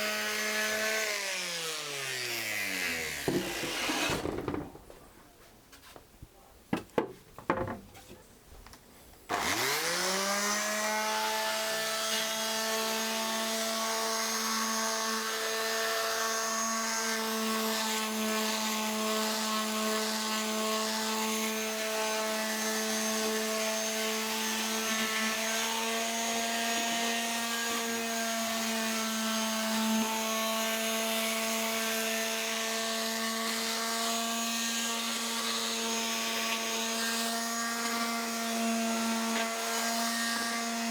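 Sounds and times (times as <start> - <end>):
electric sander running: 0.0 - 4.5, 9.3 - 14.0, 33.5 - 40.9
knocks: 3.2 - 5.0, 6.7 - 7.9.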